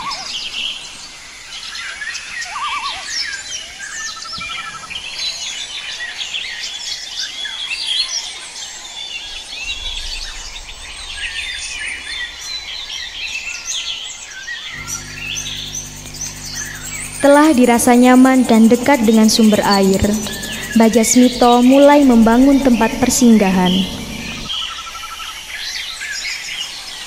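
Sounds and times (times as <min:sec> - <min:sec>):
birds chirping: 0:14.6 - 0:24.7.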